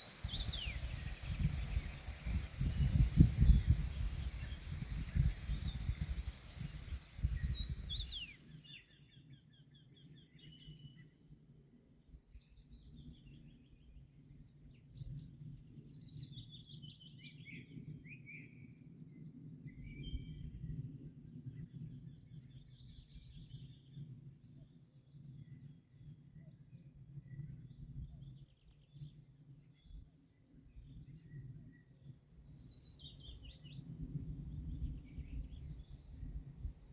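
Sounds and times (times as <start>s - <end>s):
steady low rumble: 0.0s - 8.3s
loud hiss: 0.0s - 8.6s
songbirds singing: 0.0s - 8.9s, 31.0s - 36.9s.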